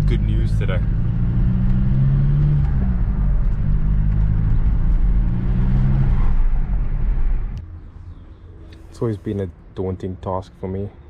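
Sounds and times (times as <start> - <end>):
diesel engine drone: 0.0 - 9.5
road noise: 0.0 - 11.0.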